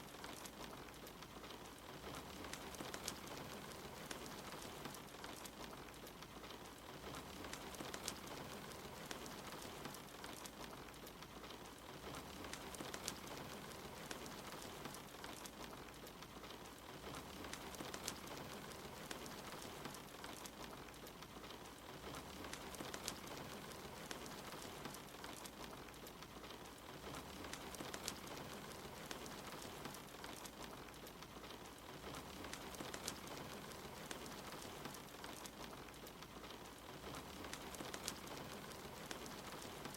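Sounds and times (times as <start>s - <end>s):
rain hissing: 0.0s - 39.9s
wood fire crackling: 0.0s - 39.9s.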